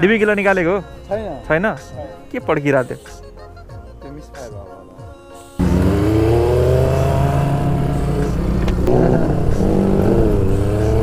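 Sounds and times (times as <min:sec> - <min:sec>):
motorcycle accelerating hard: 0:05.6 - 0:11.0.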